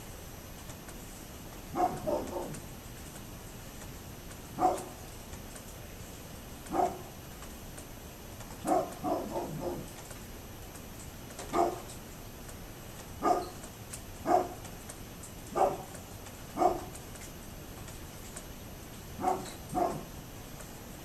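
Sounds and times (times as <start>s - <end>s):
dog barking: 1.7s - 2.6s, 4.6s - 5.0s, 6.7s - 7.1s, 8.6s - 9.9s, 11.5s - 11.9s, 13.2s - 13.6s, 14.2s - 14.6s, 15.5s - 15.9s, 16.6s - 17.0s, 19.2s - 20.2s.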